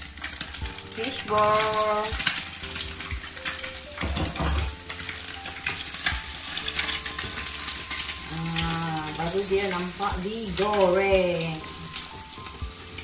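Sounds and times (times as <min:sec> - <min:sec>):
food sizzling in hot oil: 0:00.0 - 0:13.0
utensil knocking on pan: 0:03.9 - 0:04.9.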